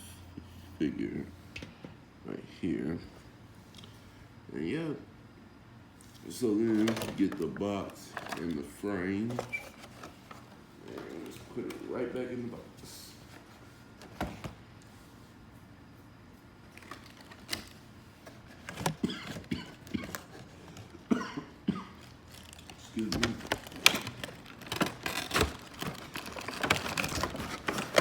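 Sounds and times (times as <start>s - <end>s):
plastic and cardboard packaging clicks: 6.6s - 8.6s, 16.7s - 21.0s, 22.0s - 28.0s.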